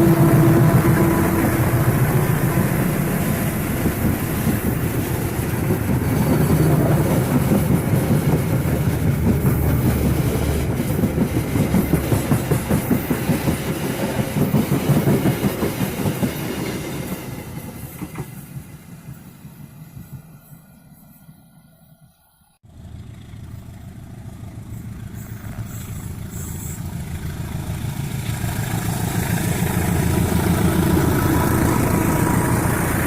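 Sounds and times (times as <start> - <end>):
train wheels clacking on rail joints: 0.0 - 18.7.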